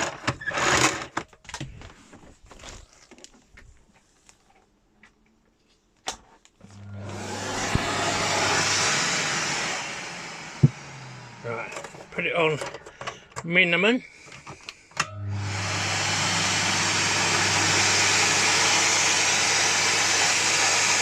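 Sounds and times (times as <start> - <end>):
vacuum cleaner running: 6.6 - 12.8, 15.0 - 21.0.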